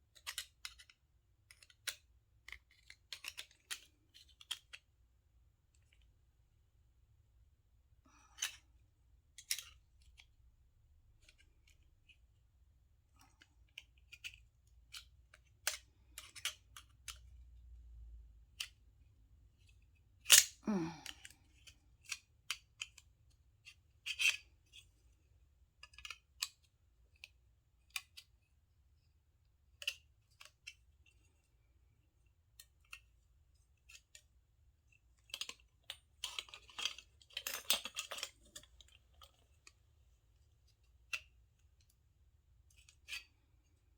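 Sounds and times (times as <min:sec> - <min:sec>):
metal parts clicking and clinking: 0:35.2 - 0:39.6.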